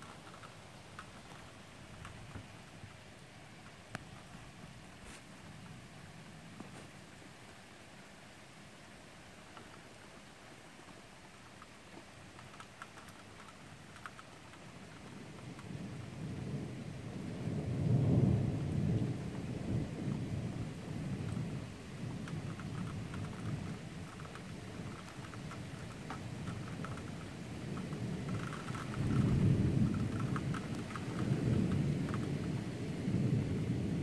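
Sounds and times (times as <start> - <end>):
light rain ticking: 0.0 - 34.0
rolling thunder: 15.0 - 25.0, 25.8 - 34.0.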